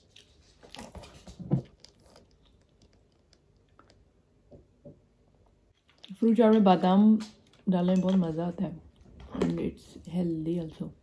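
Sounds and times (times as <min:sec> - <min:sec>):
person chewing food: 0:00.0 - 0:04.8.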